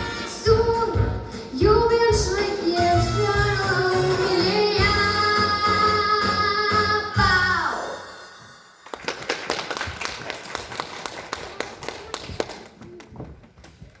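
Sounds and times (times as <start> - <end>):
audience clapping: 8.8 - 13.4.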